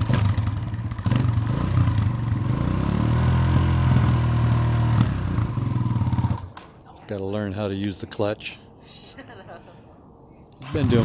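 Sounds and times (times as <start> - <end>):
motorcycle engine running: 0.0 - 6.5, 10.6 - 11.0.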